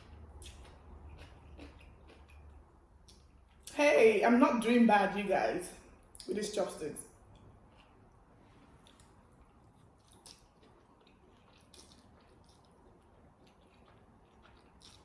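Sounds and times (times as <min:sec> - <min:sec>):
chewing noodles: 0:00.0 - 0:03.7, 0:07.3 - 0:15.0.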